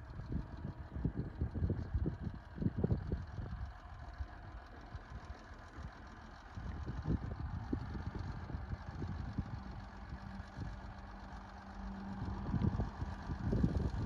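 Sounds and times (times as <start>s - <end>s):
heavy diesel engine rumbling: 0.0s - 14.0s.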